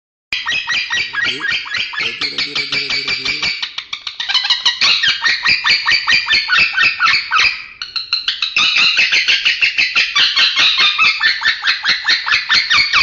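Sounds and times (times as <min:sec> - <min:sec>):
lovebird chattering: 0:00.9 - 0:03.6.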